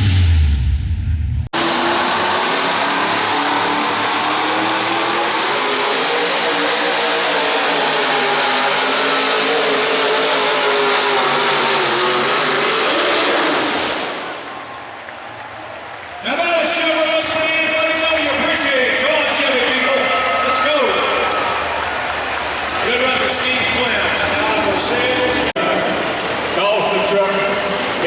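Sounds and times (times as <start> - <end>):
engine at full throttle: 1.6 - 14.5, 17.0 - 28.0.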